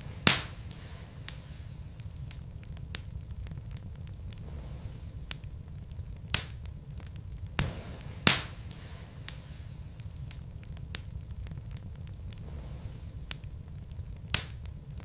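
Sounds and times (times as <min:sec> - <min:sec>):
fire crackling and popping: 0:00.0 - 0:15.0
wood fire burning: 0:00.0 - 0:15.0
brief hiss: 0:00.2 - 0:02.1, 0:07.6 - 0:10.4.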